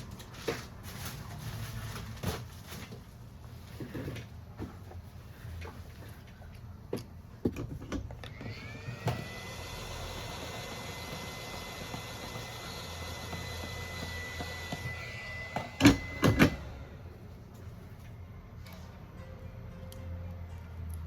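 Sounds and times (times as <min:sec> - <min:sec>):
small electric motor whine: 0:08.2 - 0:17.1.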